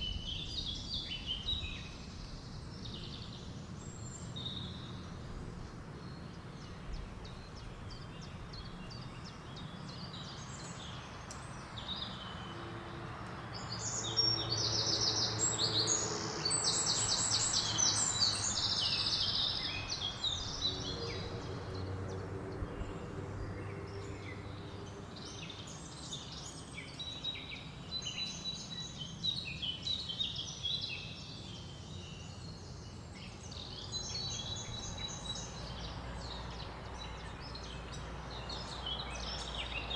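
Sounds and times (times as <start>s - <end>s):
birds singing and calling: 6.0s - 39.9s.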